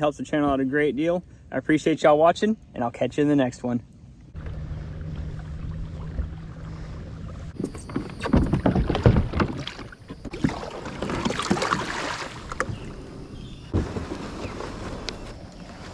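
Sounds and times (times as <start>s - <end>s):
water splashing: 4.4s - 13.0s.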